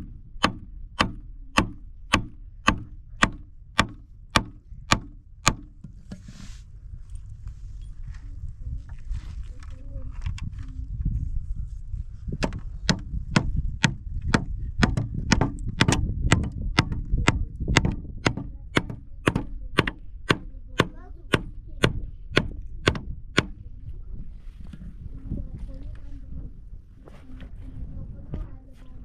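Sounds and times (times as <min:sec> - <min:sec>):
tool striking hard object: 0:00.0 - 0:06.0, 0:12.4 - 0:23.6
steady low rumble: 0:00.0 - 0:29.0.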